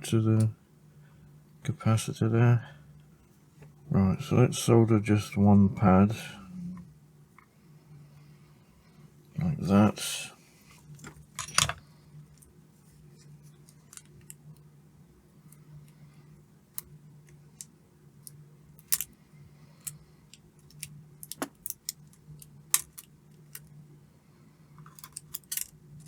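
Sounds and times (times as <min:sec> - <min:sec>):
steady low hum: 0:00.0 - 0:26.0
metal tools clicking and tapping: 0:11.4 - 0:11.8, 0:24.8 - 0:25.7.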